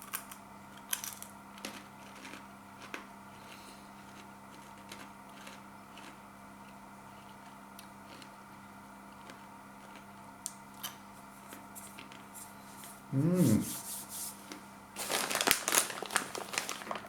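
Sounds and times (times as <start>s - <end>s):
chips crackling while eaten: 0.0s - 6.2s, 15.0s - 17.0s
person humming mmm: 13.1s - 13.8s.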